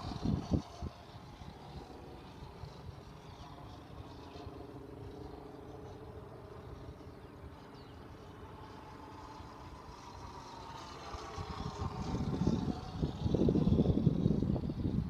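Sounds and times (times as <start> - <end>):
model plane engine droning: 0.0 - 15.0
wind rumbling on microphone: 0.0 - 15.0.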